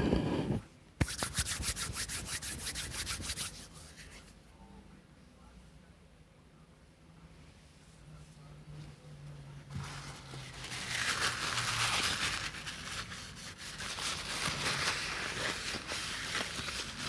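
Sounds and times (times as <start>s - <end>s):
rustling with fine crackles: 9.7s - 17.0s.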